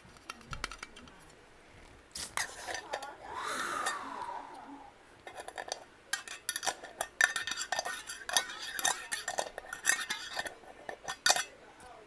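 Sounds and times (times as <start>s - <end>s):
tapping on a glass jar: 5.3s - 11.6s.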